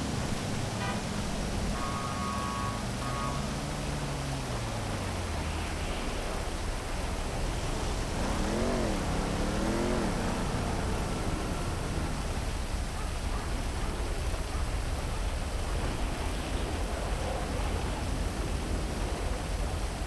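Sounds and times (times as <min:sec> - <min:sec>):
vehicle engine revving: 0:00.0 - 0:13.9
car passing: 0:00.0 - 0:14.6
steady heavy rain: 0:00.0 - 0:20.0.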